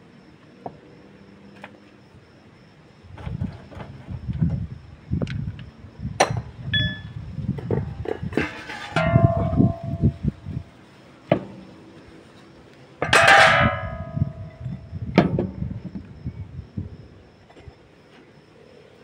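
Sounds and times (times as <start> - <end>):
ringing metal strikes: 6.8 - 7.2, 8.8 - 10.3, 13.0 - 14.8
metal clanking: 8.1 - 10.2, 13.0 - 14.8.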